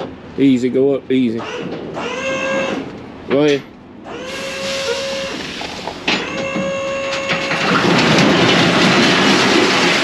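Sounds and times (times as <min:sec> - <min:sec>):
dump bed lifting whine: 0:01.2 - 0:10.0
scrap metal sliding clatter: 0:05.5 - 0:10.0.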